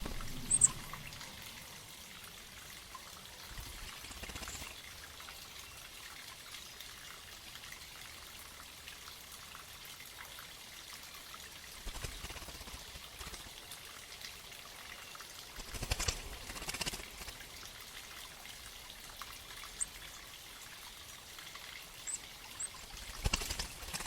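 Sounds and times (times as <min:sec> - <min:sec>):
spring water trickling: 0:00.0 - 0:24.0
high-pitched chirp: 0:00.4 - 0:00.8.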